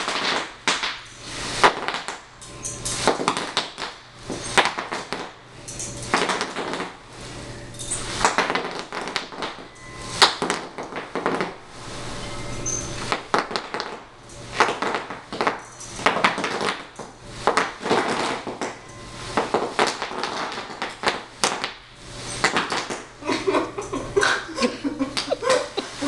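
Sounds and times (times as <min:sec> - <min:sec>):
bubble wrap popping: 0:00.0 - 0:01.0, 0:01.6 - 0:02.2, 0:03.1 - 0:04.0, 0:06.2 - 0:07.0, 0:08.2 - 0:11.6, 0:14.6 - 0:18.8, 0:19.4 - 0:21.8.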